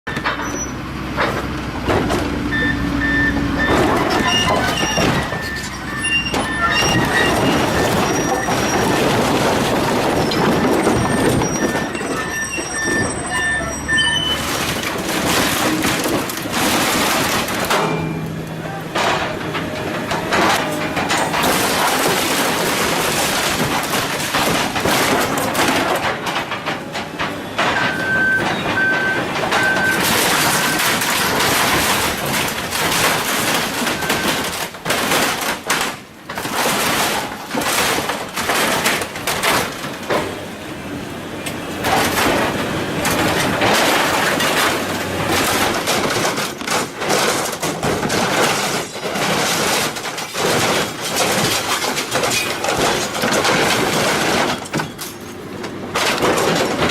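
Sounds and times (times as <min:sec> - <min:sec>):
machinery shredding scrap metal: 0:00.1 - 0:56.9
metal clanks and bangs: 0:00.1 - 0:56.9
short beeps: 0:02.5 - 0:08.4, 0:11.0 - 0:14.5.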